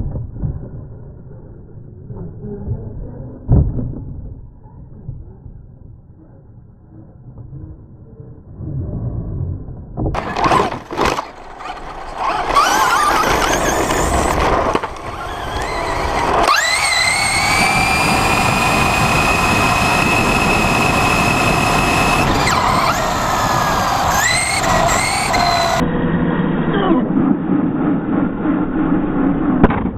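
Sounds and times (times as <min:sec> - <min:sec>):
rattling and tyre noise: 0:10.0 - 0:29.9
rc truck motor whining: 0:10.2 - 0:25.8.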